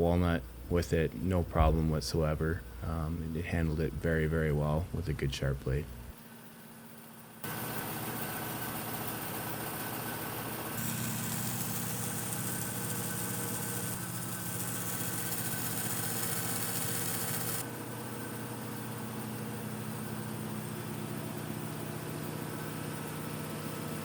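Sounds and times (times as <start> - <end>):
bandsaw motor humming: 10.2 - 18.2.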